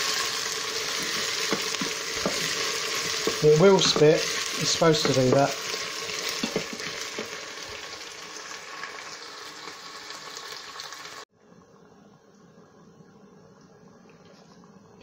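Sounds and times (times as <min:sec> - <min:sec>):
onions sizzling and spitting: 0:00.0 - 0:11.3.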